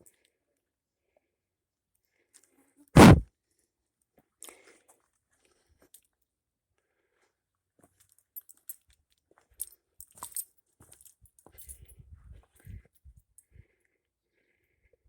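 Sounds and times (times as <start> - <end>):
loud thump: 3.0 - 3.2.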